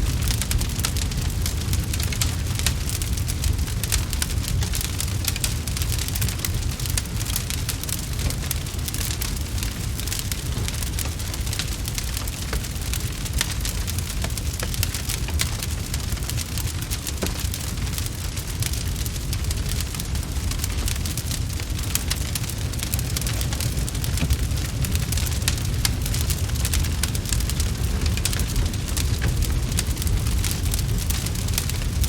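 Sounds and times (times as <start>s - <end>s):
wood fire crackling: 0.0s - 32.0s
low rumble: 17.7s - 32.0s.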